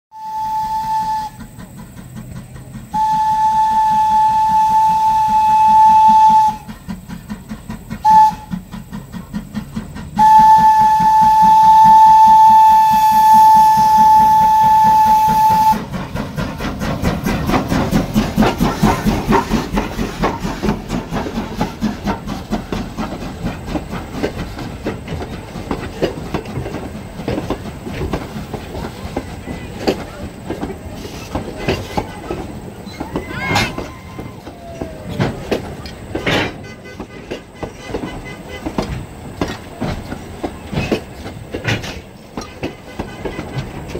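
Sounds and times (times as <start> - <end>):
steam locomotive whistle: 0.1 - 1.6, 2.9 - 6.8, 8.0 - 8.6, 10.2 - 15.9, 32.0 - 35.3
steam locomotive exhaust chuffs: 0.2 - 43.9.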